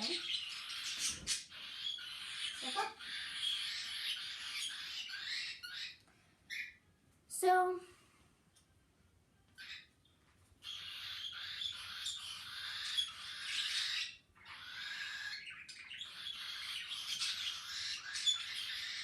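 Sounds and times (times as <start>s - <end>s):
parrot squawking: 0.0s - 6.8s, 10.6s - 19.0s.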